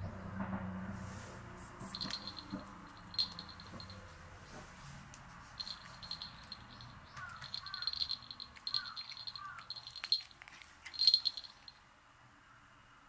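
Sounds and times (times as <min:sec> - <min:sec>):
bird rattling calls: 0:01.9 - 0:03.9, 0:05.6 - 0:11.8.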